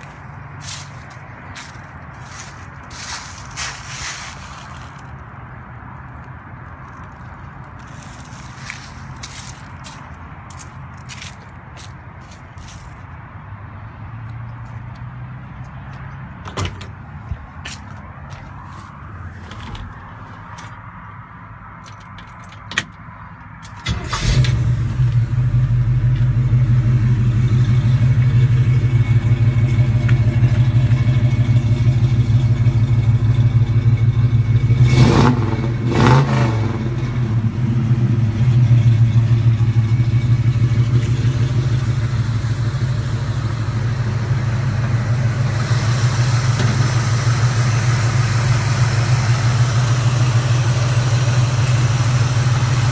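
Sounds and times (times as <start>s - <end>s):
truck engine starting and idling: 22.2s - 52.9s.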